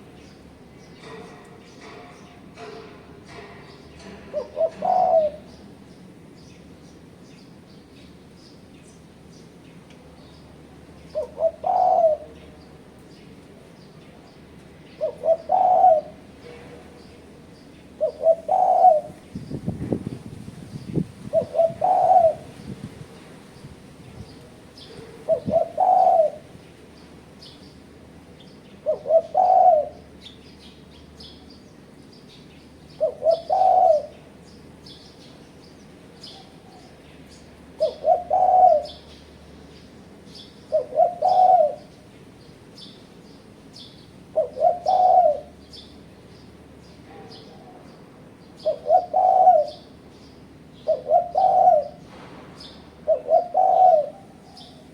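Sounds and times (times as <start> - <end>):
dove cooing: 4.3 - 5.6, 11.1 - 12.4, 15.0 - 17.0, 18.0 - 19.3, 20.9 - 23.2, 24.8 - 26.6, 28.8 - 30.2, 32.9 - 34.3, 37.8 - 39.1, 40.6 - 42.0, 44.2 - 45.6, 48.6 - 50.0, 50.8 - 52.1, 53.0 - 54.9.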